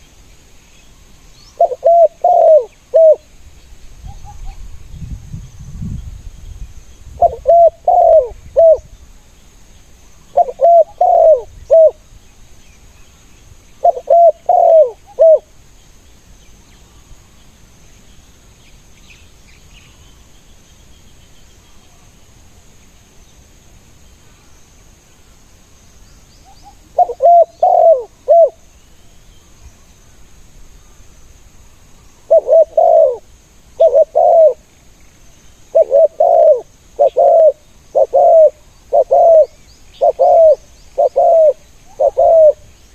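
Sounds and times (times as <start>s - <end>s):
dove cooing: 1.6s - 3.3s, 7.2s - 8.9s, 10.3s - 12.0s, 13.8s - 15.5s, 26.9s - 28.6s, 32.3s - 34.7s, 35.7s - 42.7s.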